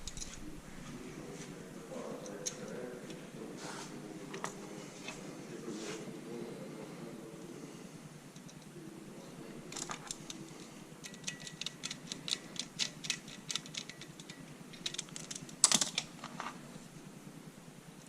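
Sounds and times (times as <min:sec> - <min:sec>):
tools clicking and tapping: 0:11.0 - 0:16.4.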